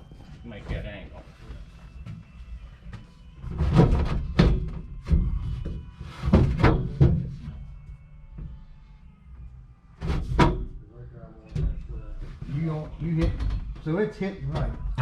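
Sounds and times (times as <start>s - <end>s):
sheet metal thuds and clangs: 3.4s - 7.5s, 10.0s - 10.8s.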